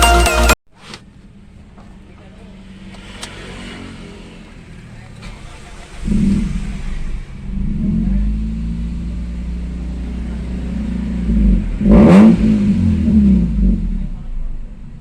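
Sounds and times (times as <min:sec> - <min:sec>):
car petrol engine running: 0:04.4 - 0:11.8.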